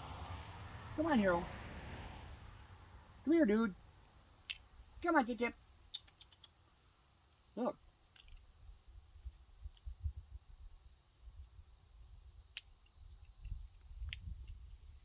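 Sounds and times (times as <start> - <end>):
low uneven rumble: 0.0 - 5.0
faint ticks: 5.9 - 6.6, 7.2 - 8.5, 12.4 - 15.0.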